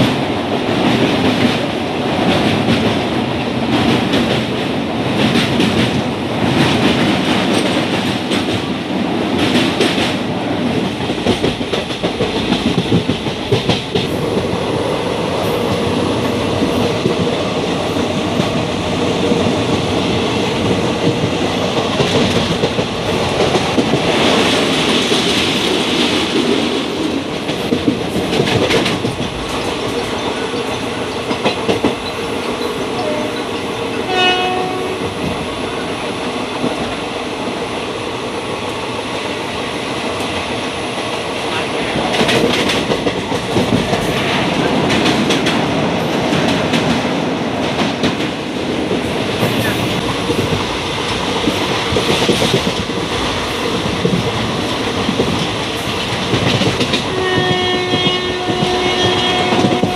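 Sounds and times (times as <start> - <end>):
clickety-clack over rail joints: 0.0 - 59.9
rumble of wheels on rail: 0.0 - 59.9.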